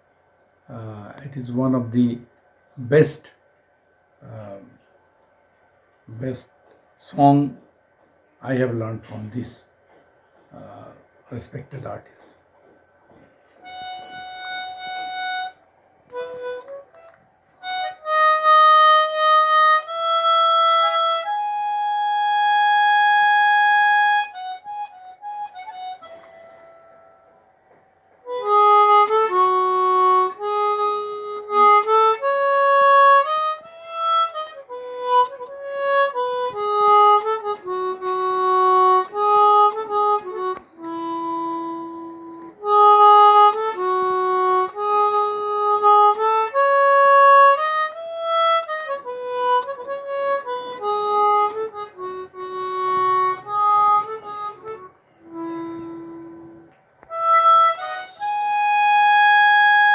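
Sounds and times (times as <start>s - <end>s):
harmonica playing slow melody: 13.6s - 27.6s, 28.2s - 59.9s.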